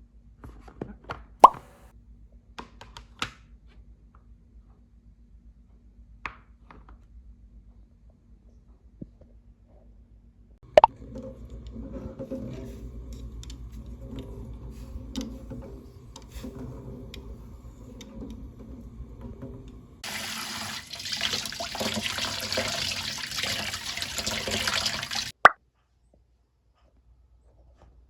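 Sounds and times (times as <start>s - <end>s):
water tap running into sink: 15.4s - 25.4s.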